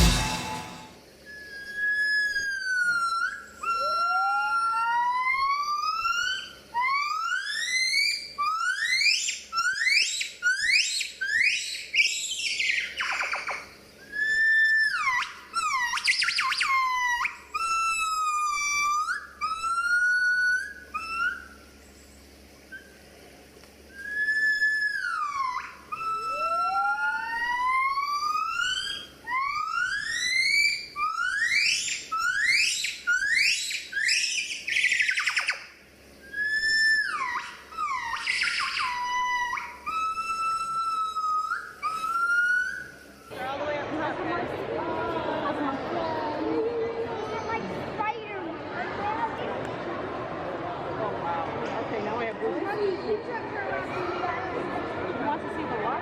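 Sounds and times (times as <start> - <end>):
gibbon whooping calls: 0.0 - 21.8, 22.6 - 23.1, 23.9 - 43.4.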